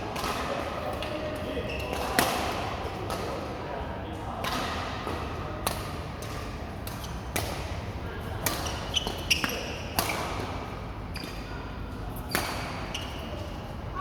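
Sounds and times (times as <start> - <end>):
rackets hitting shuttlecock: 4.4 - 7.8, 8.4 - 10.7.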